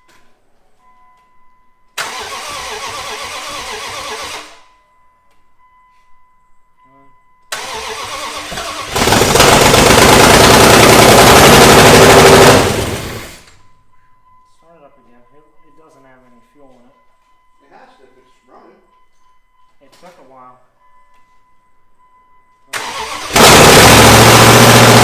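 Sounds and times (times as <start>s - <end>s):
engine starter cranking: 2.0s - 4.7s, 7.6s - 13.6s, 22.8s - 25.0s
engine running loud: 7.8s - 13.5s, 22.8s - 25.0s.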